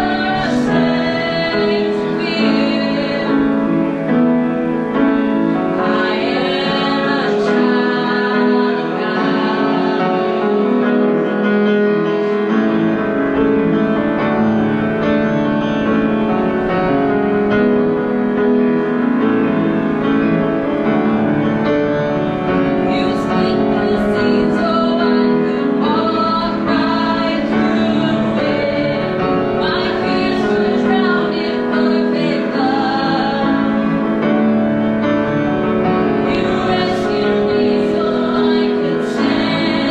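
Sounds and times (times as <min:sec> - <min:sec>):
woman singing: 0:00.0 - 0:03.9, 0:05.7 - 0:11.0, 0:22.8 - 0:34.0, 0:36.2 - 0:39.9
keyboard accompaniment: 0:00.0 - 0:39.9.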